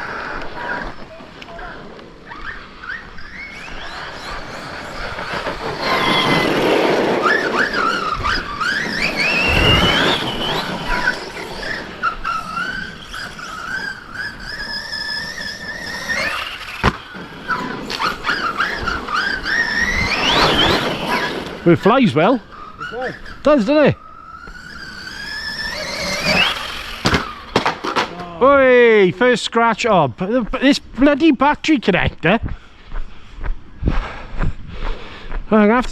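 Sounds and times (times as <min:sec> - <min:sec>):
electric motor whining: 0:02.3 - 0:27.6.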